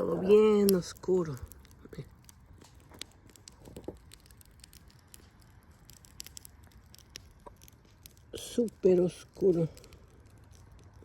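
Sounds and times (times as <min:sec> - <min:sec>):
campfire crackling: 0:00.0 - 0:11.0
low background rumble: 0:00.0 - 0:11.0.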